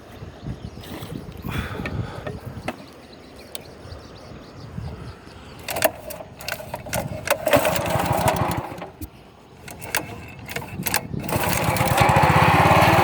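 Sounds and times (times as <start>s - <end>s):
small boat engine running: 5.6s - 13.0s.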